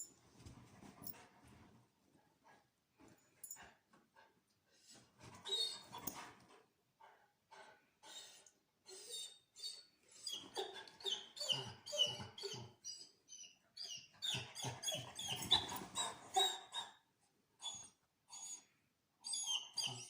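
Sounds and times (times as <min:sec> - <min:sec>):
dog whining: 0:05.4 - 0:06.2, 0:08.1 - 0:17.0, 0:17.6 - 0:20.0.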